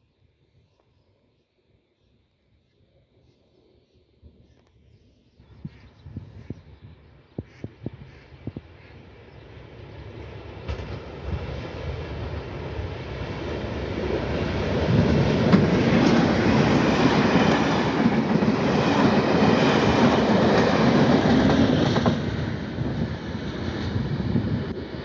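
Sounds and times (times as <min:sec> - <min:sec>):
diesel locomotive engine: 0:06.4 - 0:25.0
train wheels on rails: 0:09.5 - 0:25.0.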